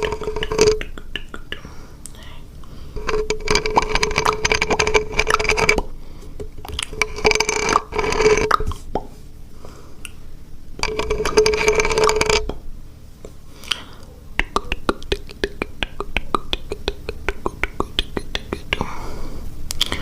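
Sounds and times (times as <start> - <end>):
steady held tone: 0.0 - 9.2
wet mouth clicks and pops: 6.6 - 7.0, 13.6 - 18.8.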